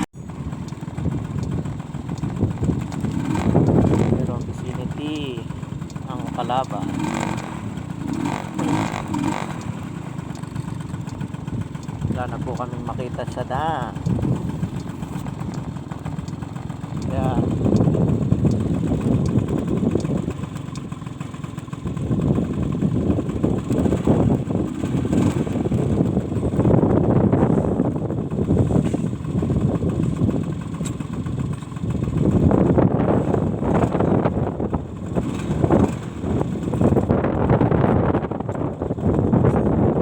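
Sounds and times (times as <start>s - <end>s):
wind buffeting microphone: 0.0s - 21.2s, 21.8s - 40.0s
motorcycle engine running: 0.0s - 40.0s.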